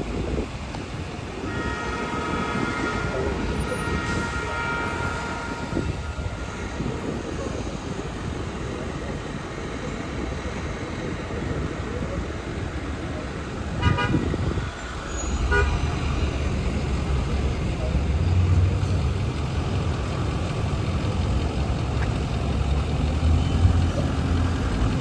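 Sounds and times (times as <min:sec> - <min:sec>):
street traffic passing: 0:00.0 - 0:25.0
vehicle horn toots: 0:01.4 - 0:07.1, 0:13.8 - 0:19.0.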